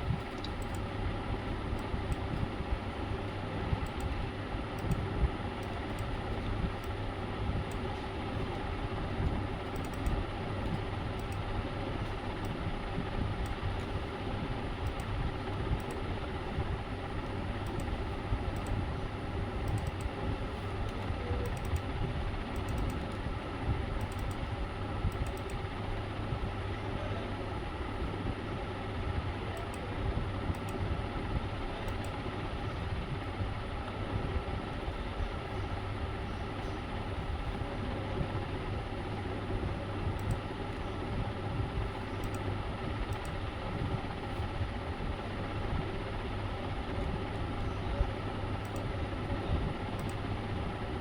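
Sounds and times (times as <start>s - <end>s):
mechanical hum and hiss: 0.0s - 51.0s
faint clicks: 0.2s - 0.8s, 9.6s - 11.4s, 17.6s - 17.9s, 19.6s - 20.1s, 20.9s - 21.8s, 24.0s - 24.4s, 25.1s - 25.6s, 40.2s - 40.9s, 42.1s - 42.4s, 43.1s - 43.4s, 48.6s - 48.9s, 50.0s - 50.2s.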